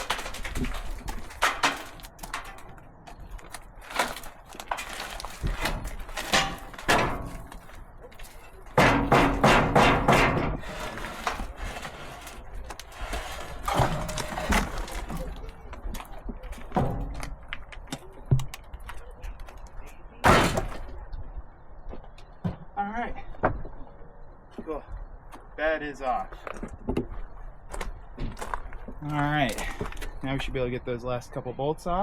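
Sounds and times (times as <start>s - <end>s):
wooden and metal knocks: 5.4s - 7.8s, 8.7s - 11.4s.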